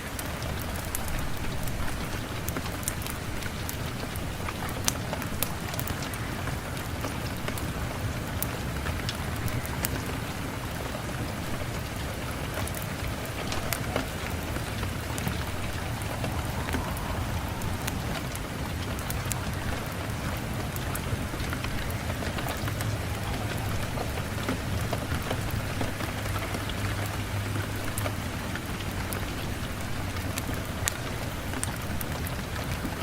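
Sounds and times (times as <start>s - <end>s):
log fire crackling: 0.0s - 33.0s
steady rain hiss: 0.0s - 33.0s
low steady rumble: 7.2s - 32.0s.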